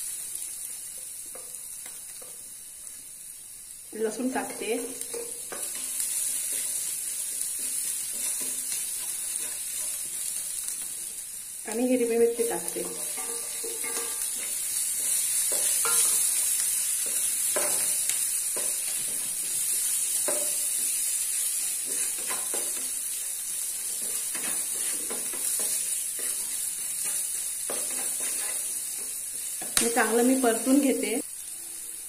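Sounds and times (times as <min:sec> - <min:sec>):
food sizzling in hot oil: 0:00.0 - 0:32.0
wooden spatula scraping pan: 0:23.8 - 0:29.1.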